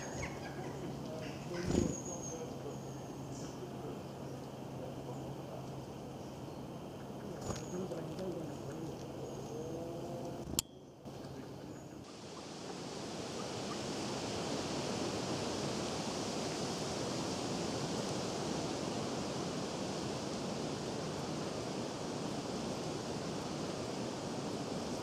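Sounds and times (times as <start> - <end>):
birds calling: 0.0 - 12.5
rushing outdoor ambience: 0.0 - 25.0.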